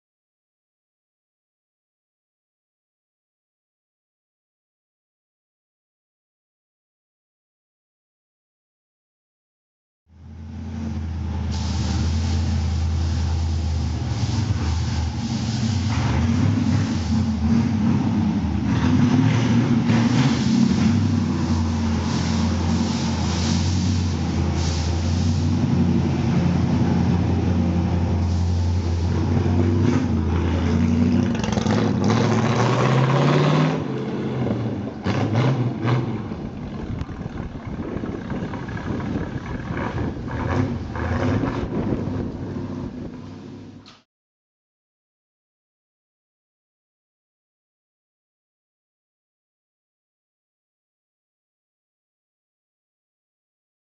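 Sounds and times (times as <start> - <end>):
v eight engine rumble: 10.1 - 44.0.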